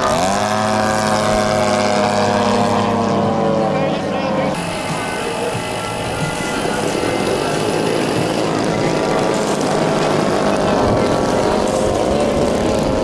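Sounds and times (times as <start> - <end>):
model airplane propeller drone: 3.7 - 13.0.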